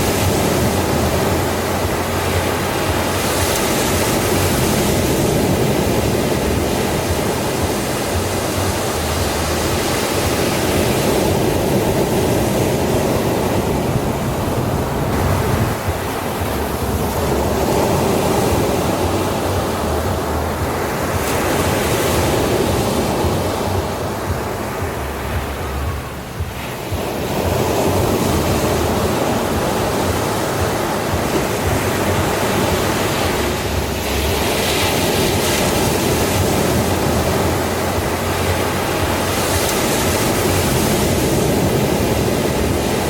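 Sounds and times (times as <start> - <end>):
ocean waves breaking on shore: 0.0 - 43.0.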